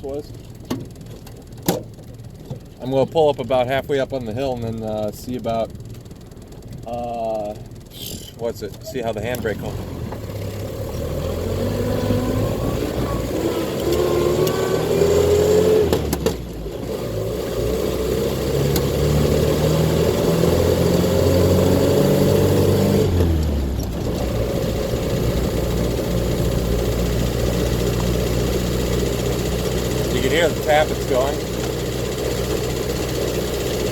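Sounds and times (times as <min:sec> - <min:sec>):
car engine revving in gear: 0:06.9 - 0:33.9.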